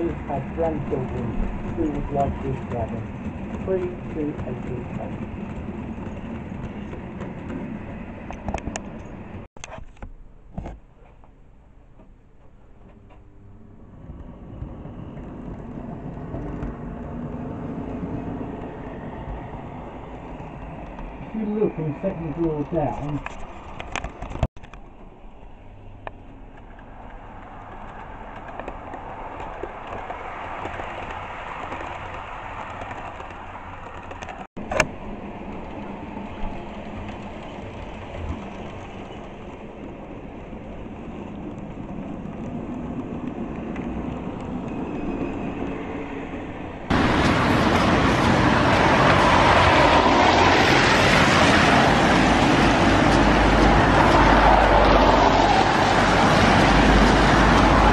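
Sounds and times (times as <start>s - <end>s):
road traffic passing: 0.0s - 9.5s, 11.2s - 57.9s.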